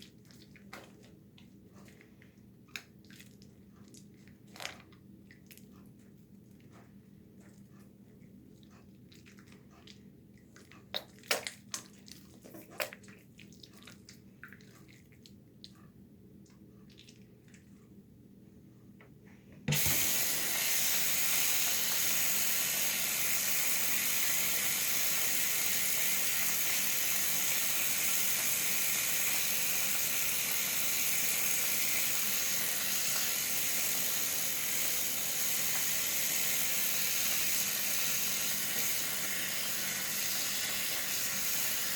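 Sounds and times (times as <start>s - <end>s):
tap turned on: 19.7s - 21.0s
water running into sink: 19.7s - 41.9s.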